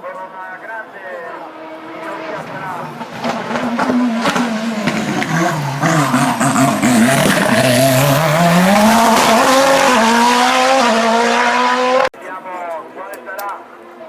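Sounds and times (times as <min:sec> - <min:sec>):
race car engine revving: 0:01.2 - 0:12.1.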